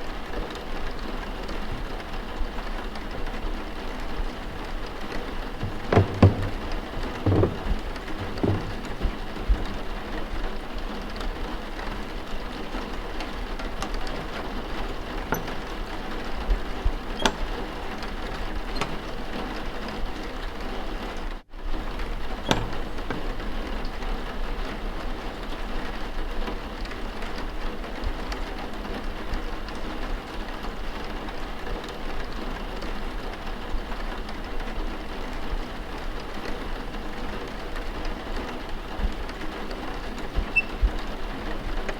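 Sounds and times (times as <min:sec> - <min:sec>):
faint clicks and knocks: 0:04.0 - 0:20.6, 0:22.0 - 0:24.2.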